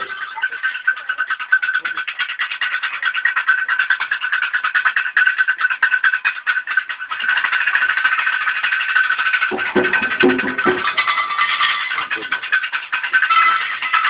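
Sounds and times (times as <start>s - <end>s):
rapid percussion strokes: 0.0s - 14.0s
steady ringing tone: 0.0s - 14.0s
lower pitched percussion part: 5.5s - 14.0s.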